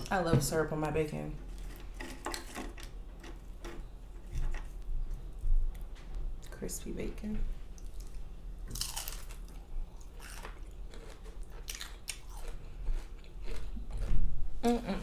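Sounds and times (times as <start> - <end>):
soft chewing: 7.4 - 15.0
crunching crispy bacon: 7.8 - 14.1.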